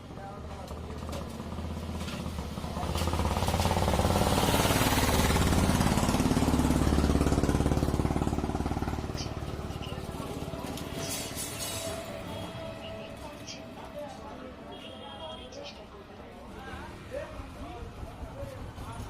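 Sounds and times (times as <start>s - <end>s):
diesel engine running: 0.6s - 13.6s.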